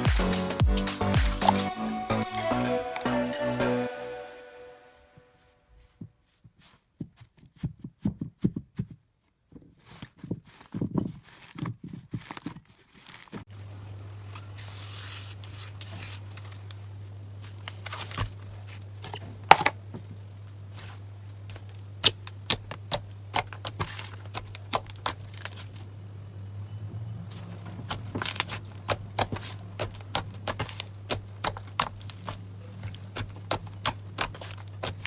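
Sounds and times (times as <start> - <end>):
slime crackling and snapping: 20.2 - 25.9, 27.3 - 35.0.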